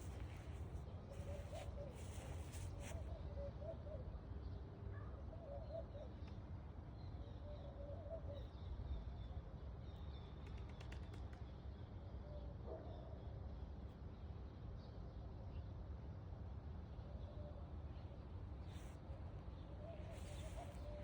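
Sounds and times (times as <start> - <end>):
faint bird calls: 0.0 - 4.0, 18.6 - 21.0.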